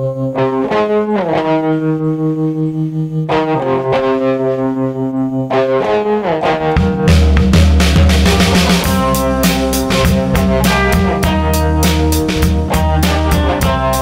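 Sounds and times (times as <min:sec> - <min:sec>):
band playing sustained chords: 0:03.4 - 0:14.0.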